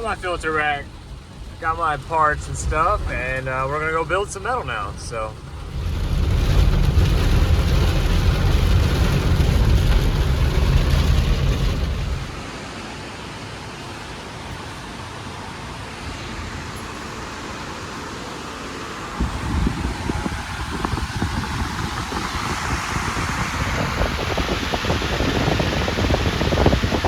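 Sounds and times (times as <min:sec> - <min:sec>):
deep rumble: 0:00.0 - 0:12.5
heavy rain hissing: 0:00.0 - 0:27.0.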